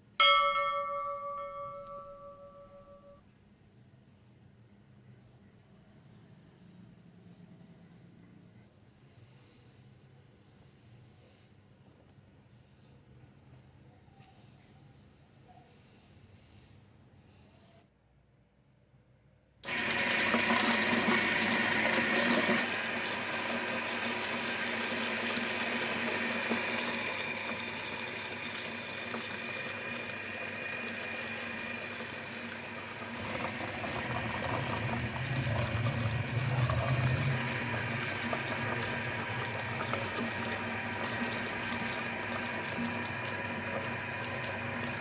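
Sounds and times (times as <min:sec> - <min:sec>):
electric meat grinder motor hum: 0:19.6 - 0:45.0.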